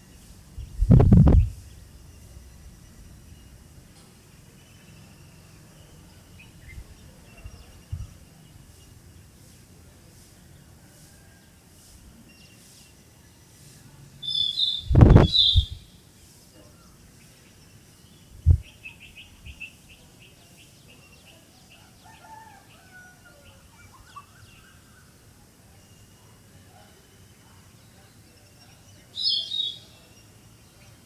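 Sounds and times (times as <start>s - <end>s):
songbirds chirping: 0.0s - 31.0s.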